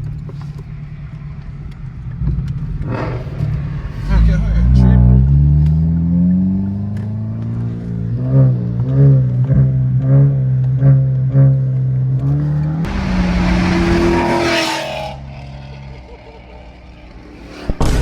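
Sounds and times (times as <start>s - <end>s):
car engine running: 0.0s - 17.9s
loud rushing roar: 1.0s - 7.3s, 12.3s - 18.0s.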